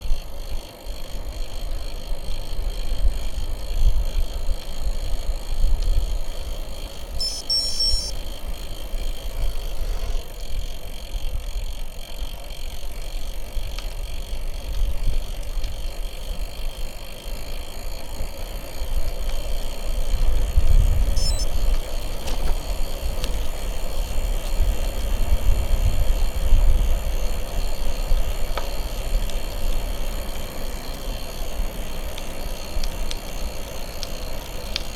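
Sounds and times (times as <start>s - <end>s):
bicycle tyres rolling on road: 0.0s - 34.9s
high chirping: 7.1s - 8.2s, 21.2s - 21.5s.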